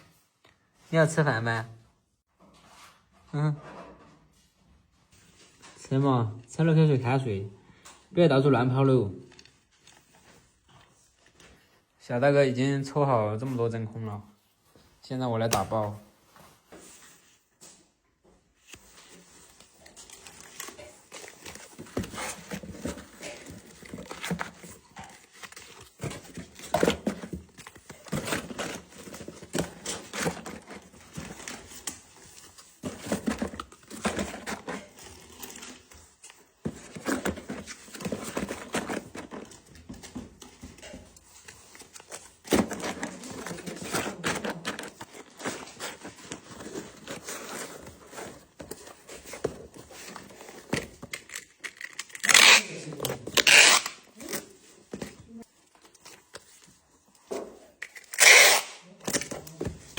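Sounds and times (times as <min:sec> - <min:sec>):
plastic packs crinkling: 0:18.6 - 0:56.7
knocks and scrapes: 0:18.8 - 0:51.5.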